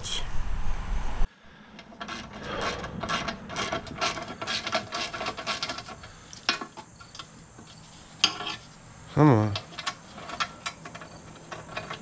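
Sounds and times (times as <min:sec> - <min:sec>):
bolts and nuts clinking: 0:01.8 - 0:08.7, 0:09.5 - 0:12.0.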